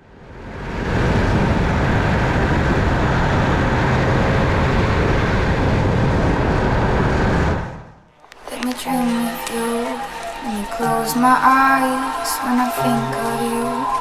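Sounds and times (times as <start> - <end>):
motorcycle engine: 0.0 - 7.2
wind noise: 0.0 - 10.4.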